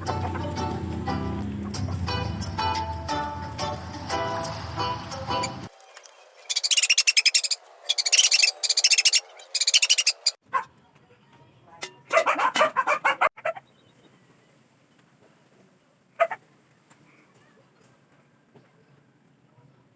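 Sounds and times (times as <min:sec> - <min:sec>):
animal chattering calls: 0:06.5 - 0:10.4.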